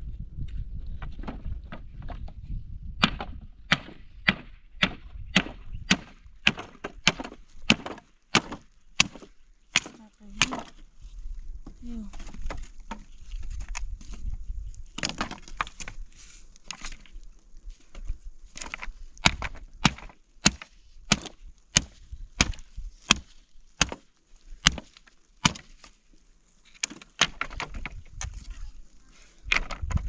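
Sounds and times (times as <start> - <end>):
wood splintering and crackling: 0.8 - 2.4, 3.0 - 30.0
axe chopping wood: 3.0 - 10.8, 15.0 - 16.0, 18.6 - 25.8, 26.8 - 27.9.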